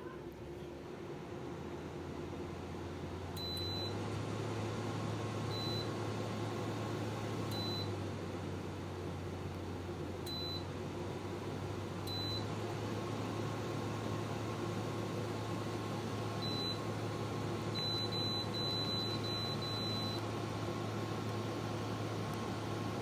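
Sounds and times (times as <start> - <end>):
air conditioner humming: 0.0 - 23.0
short high beeps: 17.8 - 20.2.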